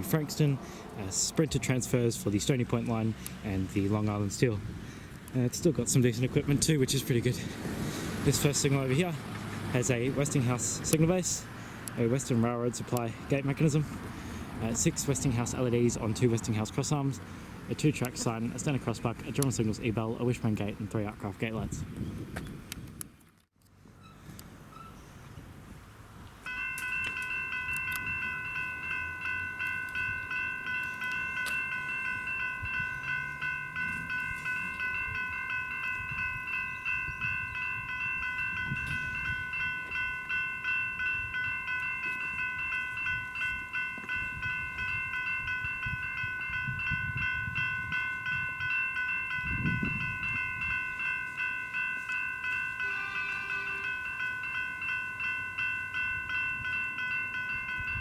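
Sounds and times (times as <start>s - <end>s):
level crossing bells ringing: 8.3s - 14.0s, 14.6s - 21.2s, 26.4s - 58.0s.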